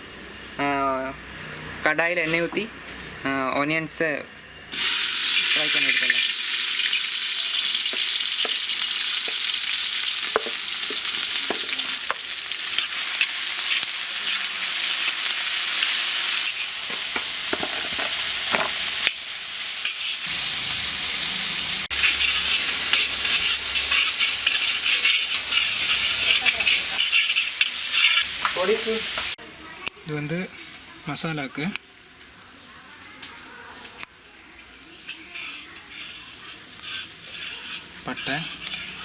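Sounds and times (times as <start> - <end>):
onions sizzling in hot oil: 4.7 - 39.0
spoon scraping and knocking pan: 7.6 - 14.4, 16.5 - 19.1, 21.9 - 29.3, 35.0 - 39.0.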